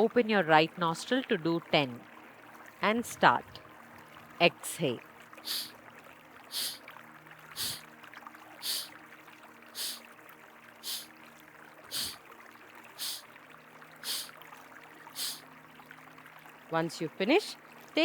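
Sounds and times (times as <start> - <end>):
river running: 0.0 - 18.0
forceful exhalations through nostril: 5.5 - 5.7, 6.5 - 6.8, 7.6 - 7.9, 8.6 - 8.9, 9.8 - 10.0, 10.8 - 11.1, 11.9 - 12.2, 13.0 - 13.2, 14.0 - 14.4, 15.2 - 15.4.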